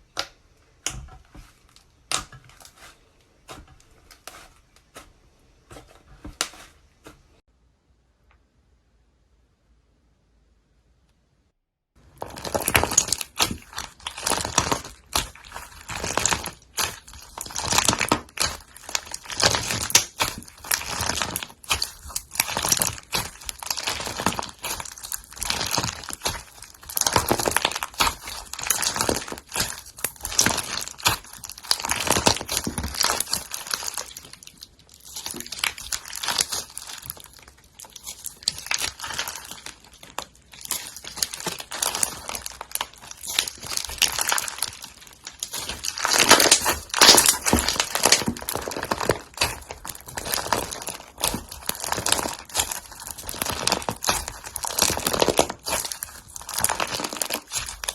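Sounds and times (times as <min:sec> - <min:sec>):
slime crackling and popping: 0:12.0 - 0:57.9.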